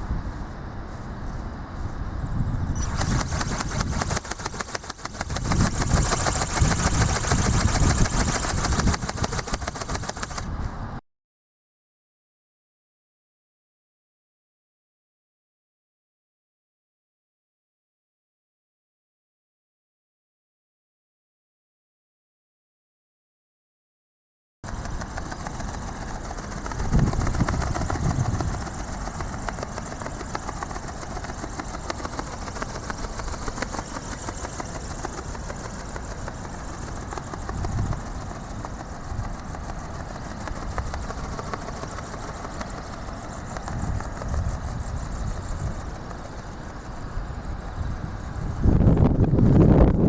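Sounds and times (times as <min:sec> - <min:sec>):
wind rumbling on microphone: 0:00.0 - 0:11.0, 0:24.7 - 0:50.0
electric motor fast buzz: 0:02.8 - 0:10.5, 0:24.7 - 0:47.0.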